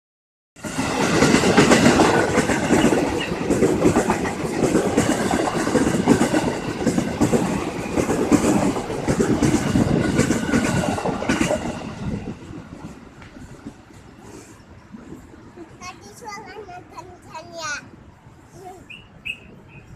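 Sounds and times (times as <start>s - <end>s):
train wheels clattering over joints: 0.6s - 14.4s.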